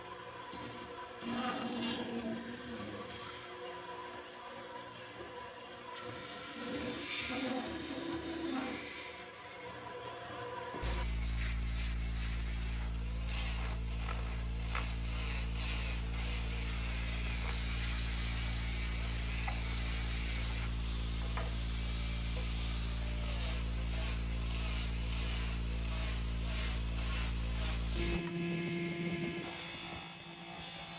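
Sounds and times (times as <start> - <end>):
power tool motor humming: 10.8 - 28.3.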